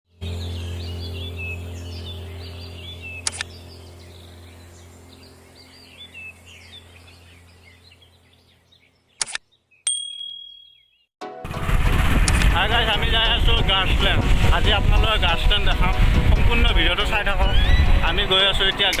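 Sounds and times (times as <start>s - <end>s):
steady low hum: 0.1s - 9.0s
birds chirping: 0.1s - 11.2s, 15.0s - 19.0s
sharp click: 3.2s - 3.5s, 9.2s - 10.5s, 12.2s - 12.5s.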